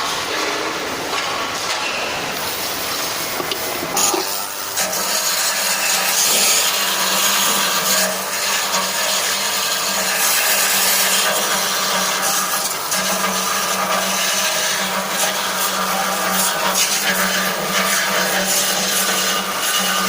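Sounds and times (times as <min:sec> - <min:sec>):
metal grinding rasping hiss: 0:02.4 - 0:16.5.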